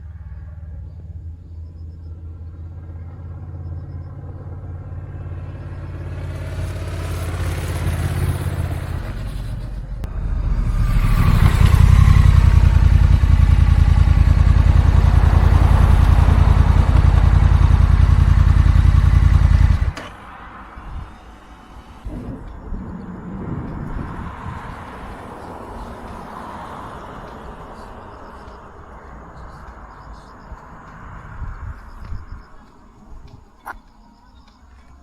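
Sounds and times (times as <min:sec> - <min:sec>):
motorcycle engine running: 0:00.7 - 0:21.2
wind noise: 0:08.2 - 0:27.5, 0:29.4 - 0:33.9.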